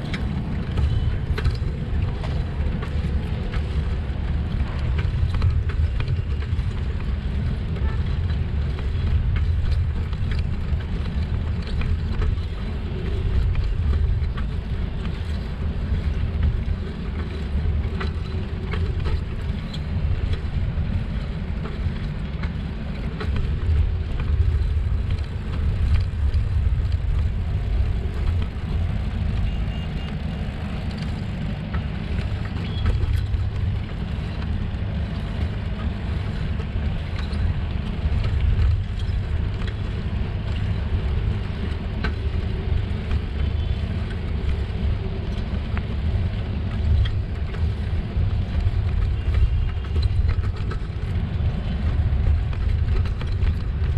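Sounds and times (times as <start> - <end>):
road noise: 0.0 - 53.9
wind rumble on microphone: 0.0 - 53.9.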